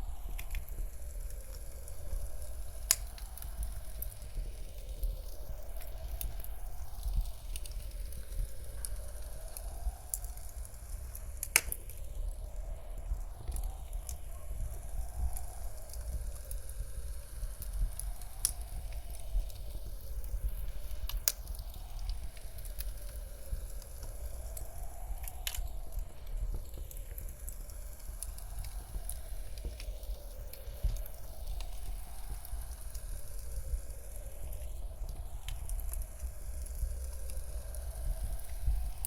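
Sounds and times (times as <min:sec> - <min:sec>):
blizzard wind rumble: 0:00.0 - 0:39.0
wood fire crackling: 0:00.0 - 0:39.0
sharp fire pops: 0:11.4 - 0:12.1.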